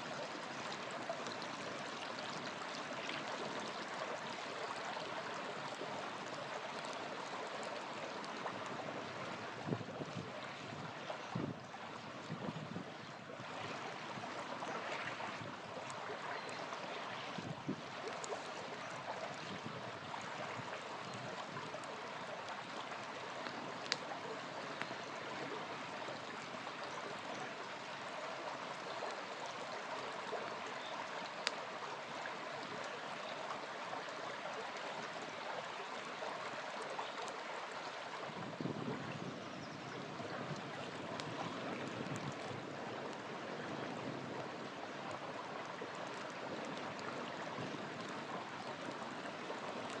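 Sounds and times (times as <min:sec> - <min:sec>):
small river flowing: 0:00.0 - 0:50.0
campfire crackling and popping: 0:15.8 - 0:19.6, 0:20.5 - 0:27.4, 0:31.2 - 0:31.9, 0:40.4 - 0:48.2, 0:48.8 - 0:50.0.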